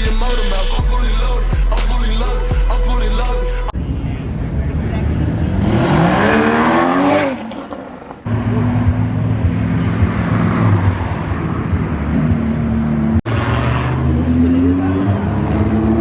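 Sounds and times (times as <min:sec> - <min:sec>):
car engine revving: 0:00.0 - 0:03.7, 0:04.3 - 0:16.0.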